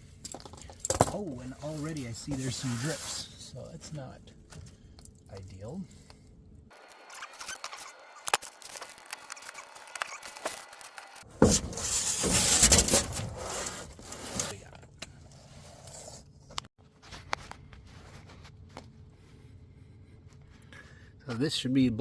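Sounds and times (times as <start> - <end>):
panel scraping against underside: 11.3 - 14.6.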